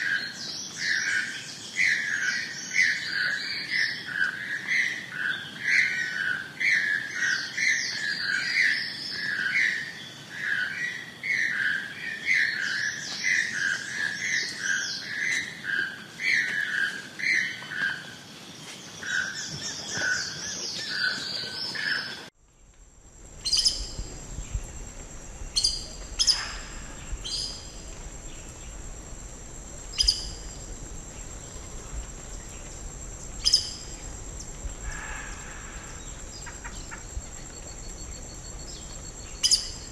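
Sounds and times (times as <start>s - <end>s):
high thin whine: 22.7s - 39.9s
toucans calling: 23.2s - 39.9s.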